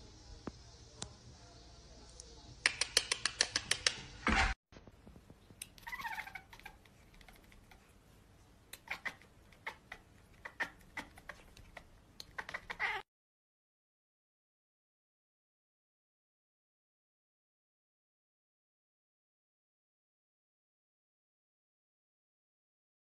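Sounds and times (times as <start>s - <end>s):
sharp clicks: 2.2s - 4.1s
cat meowing: 5.8s - 7.4s, 8.8s - 13.0s.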